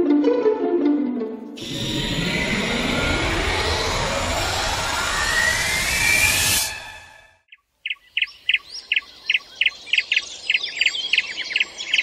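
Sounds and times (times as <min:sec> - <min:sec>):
loud rushing sound: 0:01.6 - 0:07.5
higher bird twittering: 0:07.5 - 0:12.0
sharp repeated bird chirps: 0:07.5 - 0:12.0.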